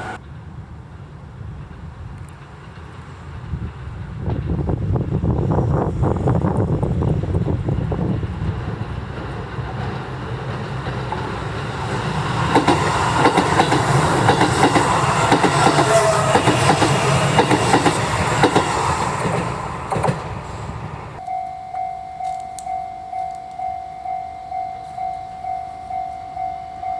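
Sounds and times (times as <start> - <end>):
wheels clicking over rail joints: 0.0 - 21.5
electric train passing: 0.0 - 26.9.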